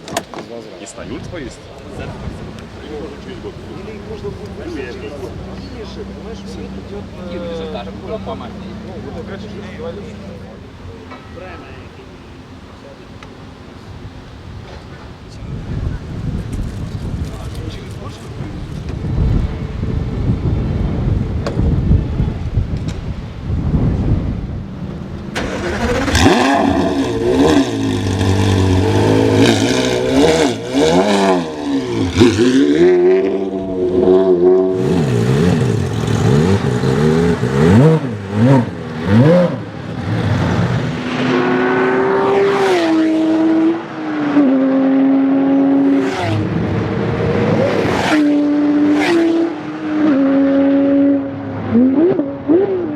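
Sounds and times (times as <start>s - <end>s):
exhaust cracks: 24.9s - 41.0s
sports car engine revving: 24.9s - 52.9s.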